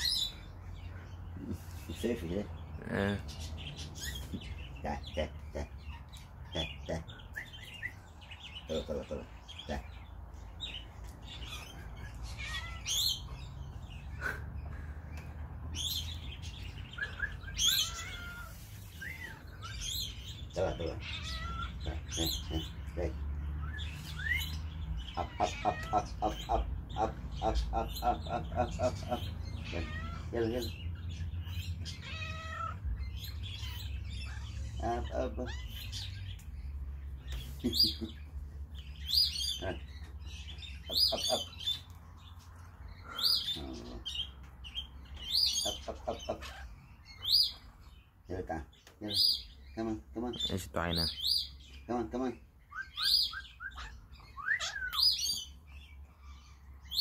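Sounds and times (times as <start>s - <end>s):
birds chirping: 0.0s - 57.0s
short repeated bird calls: 5.5s - 22.9s
bird high-pitched call: 17.0s - 20.2s, 52.7s - 55.6s.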